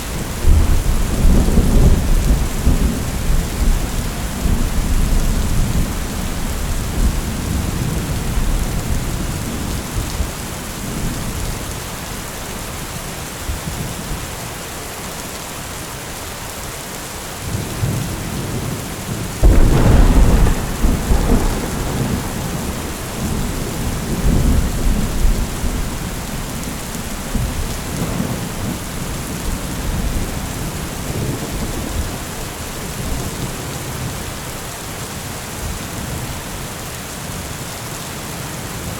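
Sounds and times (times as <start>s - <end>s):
steady rain: 0.0s - 38.9s
loud thunder crack: 19.4s - 26.3s
thunder rumbling: 19.4s - 34.2s.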